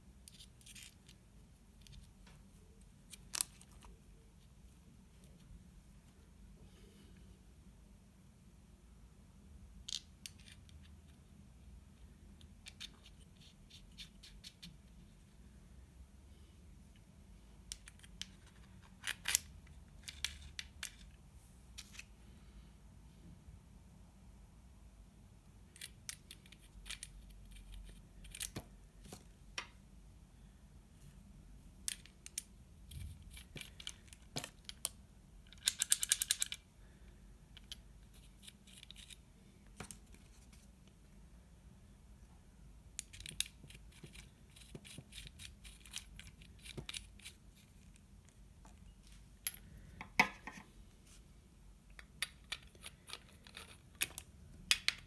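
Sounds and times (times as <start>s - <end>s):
small hard parts clicking: 31.8s - 36.6s.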